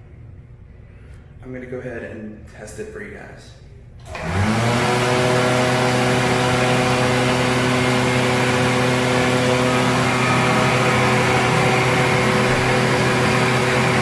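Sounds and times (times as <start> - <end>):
hand dryer air rushing: 4.0 - 14.0
hand dryer motor humming: 4.0 - 14.0.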